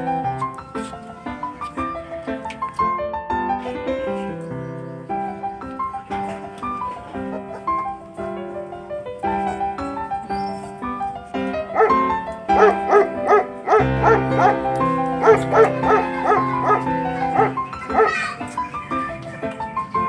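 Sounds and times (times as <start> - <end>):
piano background music: 0.0 - 20.0
puppies squeaking and whimpering: 10.3 - 10.8, 12.6 - 14.6, 15.2 - 18.4.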